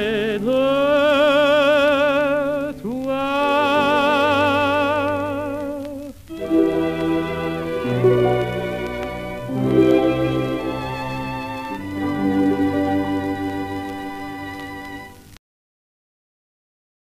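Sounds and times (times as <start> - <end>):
man singing with vibrato: 0.0 - 6.2
orchestra playing: 6.3 - 15.4.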